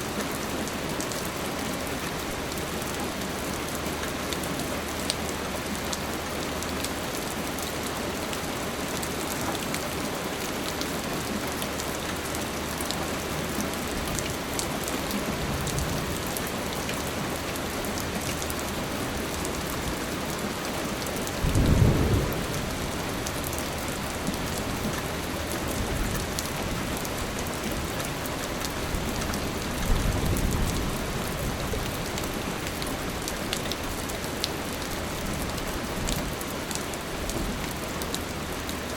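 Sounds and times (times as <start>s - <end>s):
steady rain: 0.0s - 38.9s
thunder rumbles: 21.4s - 24.9s.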